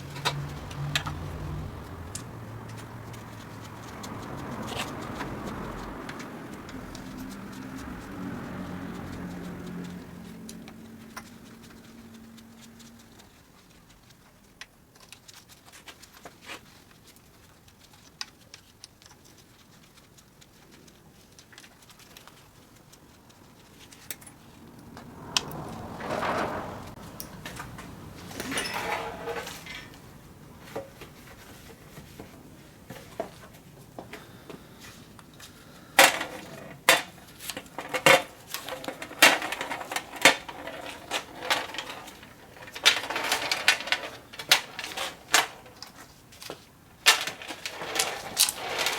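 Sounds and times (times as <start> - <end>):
metal rattling and scraping: 0.0 - 14.2, 23.3 - 33.8, 35.3 - 48.9
metal tools clicking and clinking: 27.0 - 30.2, 35.3 - 48.9.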